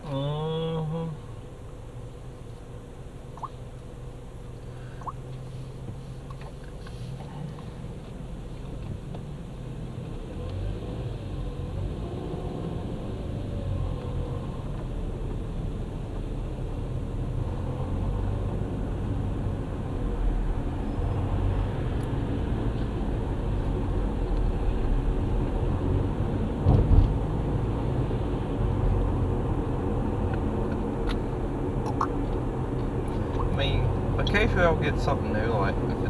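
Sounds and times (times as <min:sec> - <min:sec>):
vehicle engine and road noise: 0:00.0 - 0:36.0
loud thump: 0:26.6 - 0:27.2.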